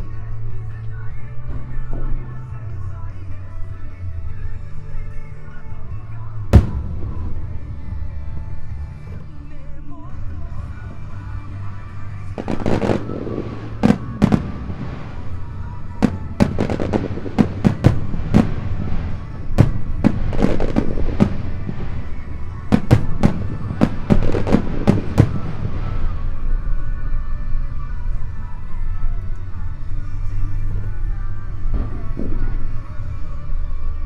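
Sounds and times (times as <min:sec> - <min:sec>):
music playing: 0:00.0 - 0:34.0
firework shells bursting: 0:06.6 - 0:09.4, 0:10.3 - 0:26.4.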